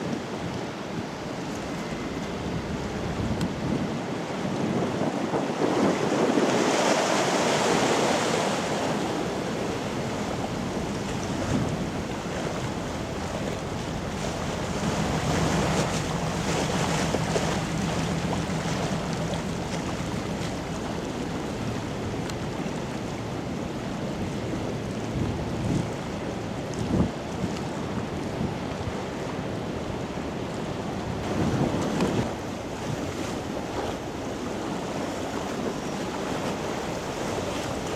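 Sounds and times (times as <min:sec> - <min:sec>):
river water: 0:00.0 - 0:37.9
wind buffeting microphone: 0:00.0 - 0:37.9
low steady drone: 0:08.8 - 0:25.0.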